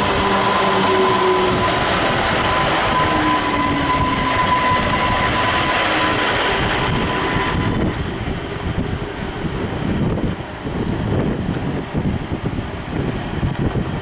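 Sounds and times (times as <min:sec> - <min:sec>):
thin high wheel squeal: 0:00.0 - 0:09.6
train wheels running on rails: 0:00.0 - 0:14.0.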